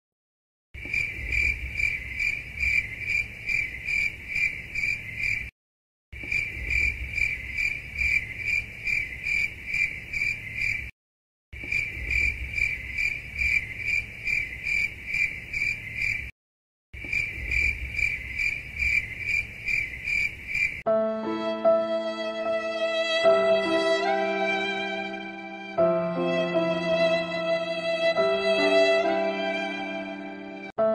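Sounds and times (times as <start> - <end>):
cricket chirping: 0.8 - 5.5, 6.2 - 10.9, 11.6 - 16.3, 17.0 - 20.8.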